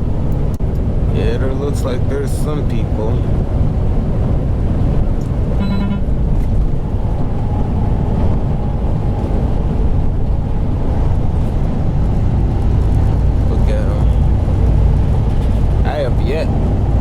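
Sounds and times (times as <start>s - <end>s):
truck engine rumble: 0.0s - 17.0s
short beep: 5.6s - 6.1s.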